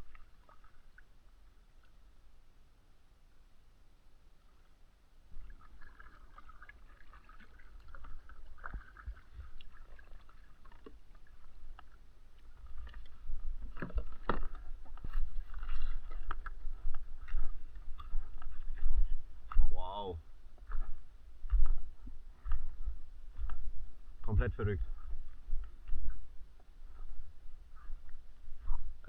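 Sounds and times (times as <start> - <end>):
paddle strokes splashing: 0.0 - 1.2, 5.3 - 19.6.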